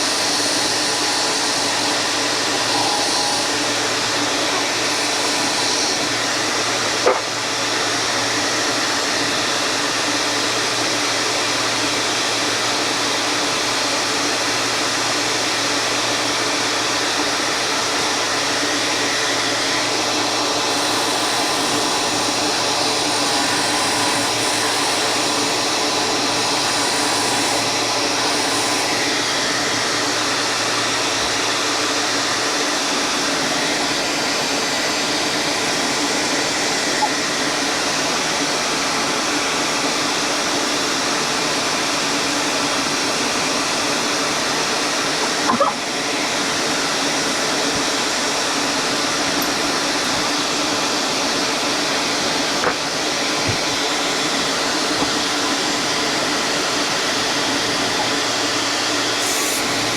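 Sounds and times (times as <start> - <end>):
workshop machine whirring: 0.0 - 59.9
brief knock: 7.0 - 7.3.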